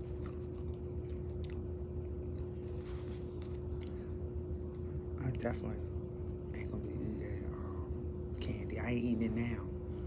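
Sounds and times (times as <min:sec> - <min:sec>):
person chewing food: 0:00.0 - 0:04.2
steady low hum: 0:00.0 - 0:10.0.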